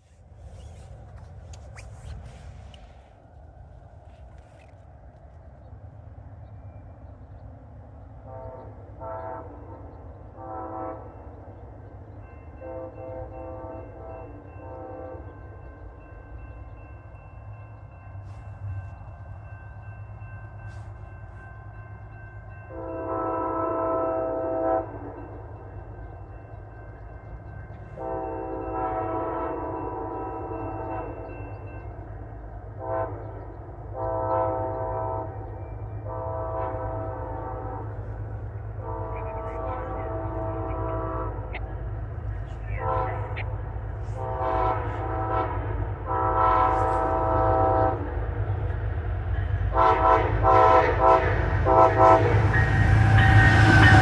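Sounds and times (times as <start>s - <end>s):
train rumble: 0.0s - 54.0s
locomotive air horn blasts: 8.2s - 9.8s, 10.4s - 11.3s, 22.7s - 25.2s, 28.0s - 31.0s, 32.8s - 41.6s, 42.4s - 48.1s, 49.7s - 54.0s.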